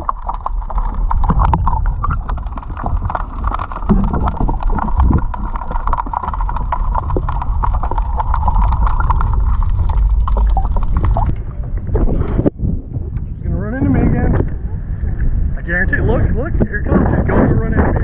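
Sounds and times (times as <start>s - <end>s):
water splashing: 0.0s - 13.0s
wind rumbling on microphone: 0.0s - 18.0s.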